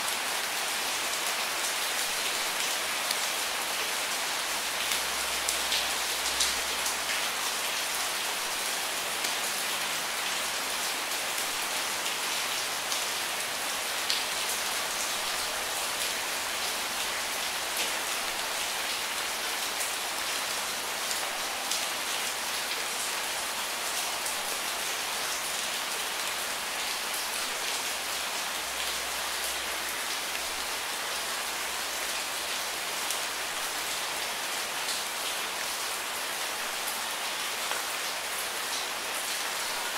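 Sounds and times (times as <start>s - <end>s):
steady rainfall: 0.0s - 39.9s
raindrops pattering on a surface: 4.6s - 34.0s.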